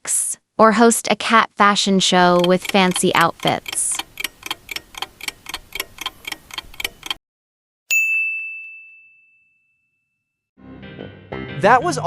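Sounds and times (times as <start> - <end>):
clock ticking: 2.2 - 7.2
bell ding: 7.9 - 10.2.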